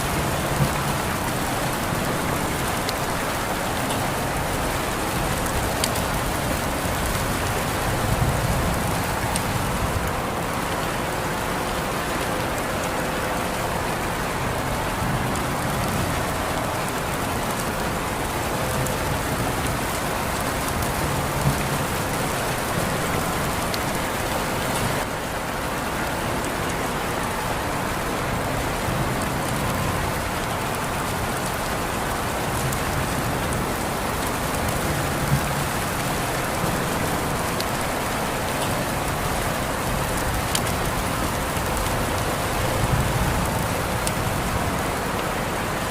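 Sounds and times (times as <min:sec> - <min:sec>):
raindrop taps: 0:00.0 - 0:12.8, 0:15.2 - 0:25.1, 0:32.2 - 0:45.0
steady rain hiss: 0:00.0 - 0:45.9.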